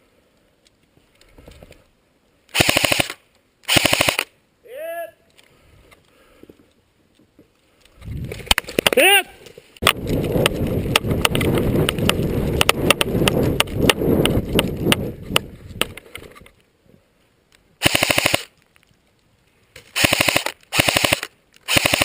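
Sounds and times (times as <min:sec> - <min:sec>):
airsoft gun full-auto bursts: 0:02.5 - 0:04.3, 0:17.8 - 0:18.5, 0:20.0 - 0:22.0
sharp clicks: 0:17.5 - 0:18.7, 0:19.8 - 0:22.0.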